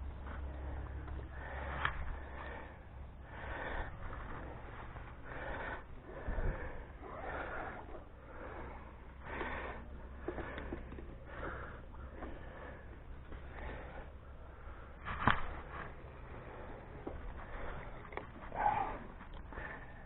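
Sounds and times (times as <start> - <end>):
low steady hum: 0.0 - 20.0
person breathing and sniffing: 0.3 - 20.0.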